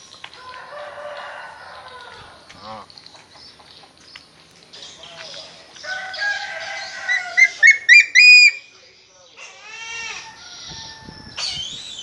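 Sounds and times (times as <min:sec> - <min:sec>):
bird calling: 0:02.0 - 0:10.8
shrill rising bird notes: 0:06.5 - 0:08.7.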